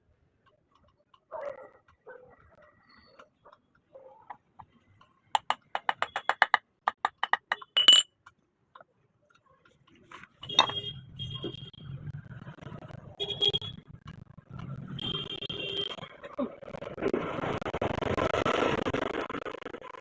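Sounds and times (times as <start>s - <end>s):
sharp metallic taps: 5.4s - 8.1s.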